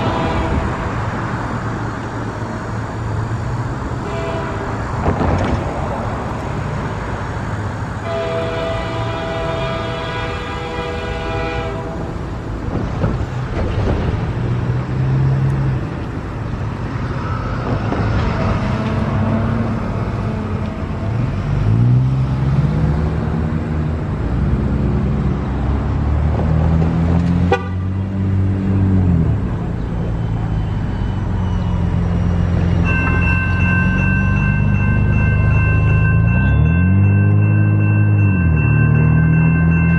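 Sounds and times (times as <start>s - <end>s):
train horn chord: 0.0s - 0.9s, 4.0s - 4.8s, 8.0s - 12.1s
locomotive engines running: 0.0s - 27.3s, 28.0s - 39.9s
train rolling rumble: 0.0s - 27.7s, 28.4s - 39.9s
steady tones: 30.3s - 39.9s.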